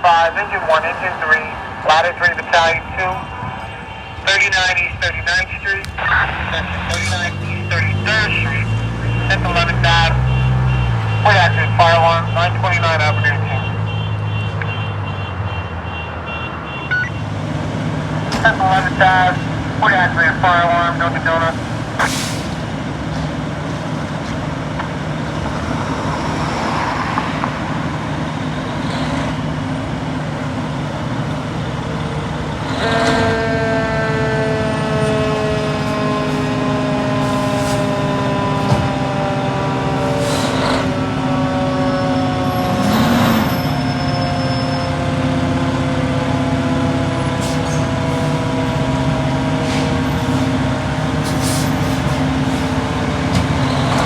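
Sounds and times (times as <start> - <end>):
diesel engines running: 0.0 - 54.0
air brake hisses: 51.3 - 51.8.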